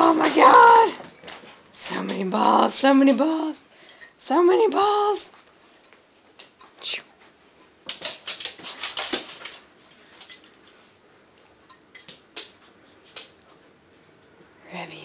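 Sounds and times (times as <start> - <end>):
dogs scrambling on hard floor: 0.0 - 3.6, 6.3 - 11.0.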